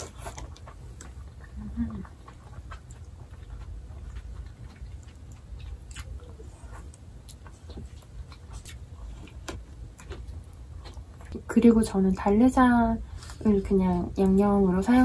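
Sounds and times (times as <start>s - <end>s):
person chewing: 0.0s - 11.4s
low steady hum: 0.0s - 15.0s.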